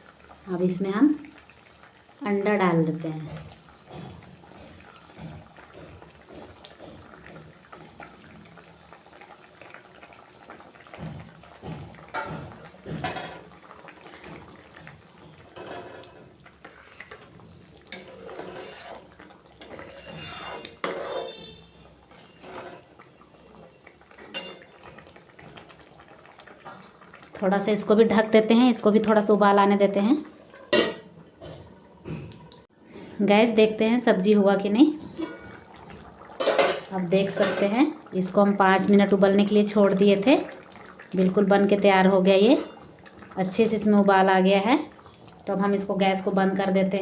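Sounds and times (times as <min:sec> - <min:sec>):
spoon scraping a pan: 0:12.1 - 0:23.2, 0:24.2 - 0:25.6, 0:35.0 - 0:35.7, 0:42.3 - 0:43.3.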